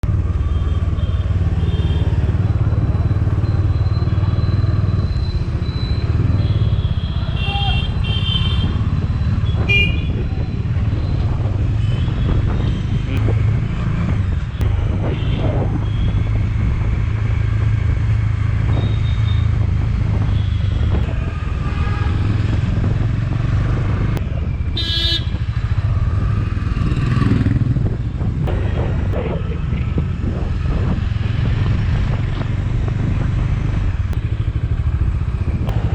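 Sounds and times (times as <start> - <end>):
road noise: 0.0 - 35.9
vehicle horn honking: 24.8 - 25.4.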